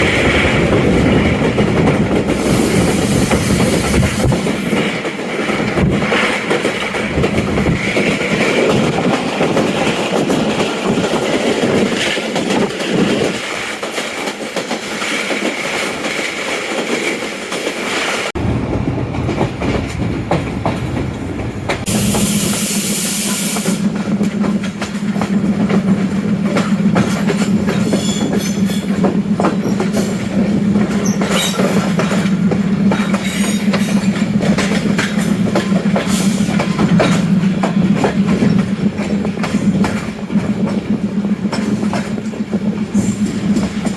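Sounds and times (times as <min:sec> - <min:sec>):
train wheels clicking over track joints: 0:00.0 - 0:43.9
wheel squeal: 0:27.7 - 0:28.9.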